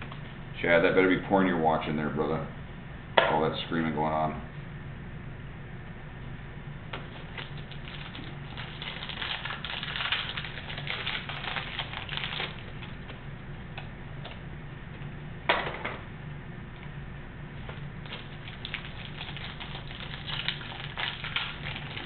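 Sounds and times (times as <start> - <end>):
card pack wrappers crinkling: 7.2 - 13.1, 18.0 - 22.0.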